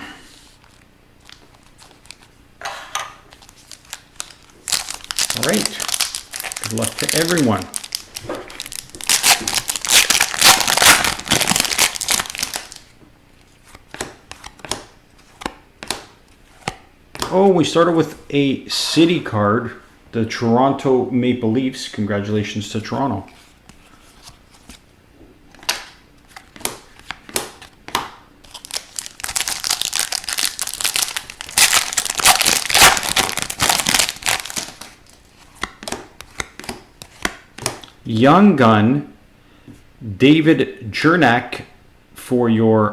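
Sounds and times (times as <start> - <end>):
wrapper crinkling and tearing: 3.3 - 12.9, 28.4 - 35.3.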